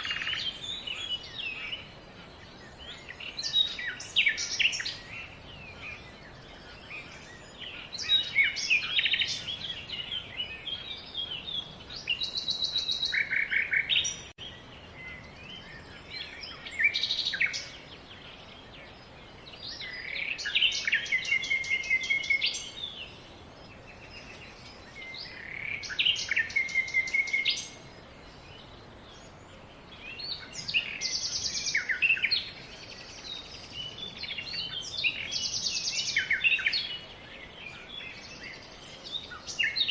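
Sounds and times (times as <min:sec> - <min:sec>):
faint background hiss: 0:00.0 - 0:39.9
songbird singing with trills: 0:00.0 - 0:39.9.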